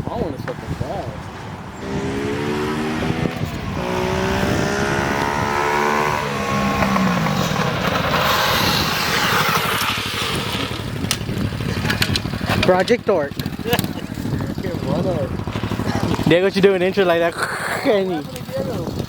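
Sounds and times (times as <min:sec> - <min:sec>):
dirt bike engine revving: 0:01.8 - 0:12.8.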